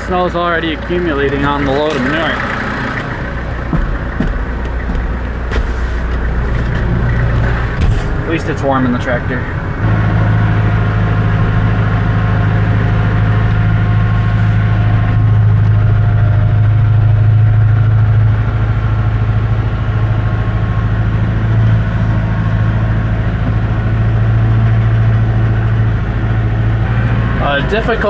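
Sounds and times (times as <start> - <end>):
tractor diesel engine droning: 0.0 - 28.0.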